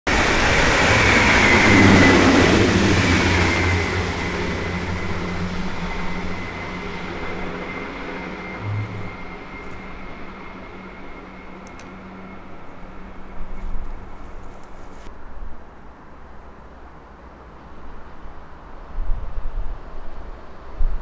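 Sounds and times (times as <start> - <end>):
train rushing along rails: 0.1 - 15.1
high train whine: 0.1 - 21.0
short low bump: 8.6 - 9.9.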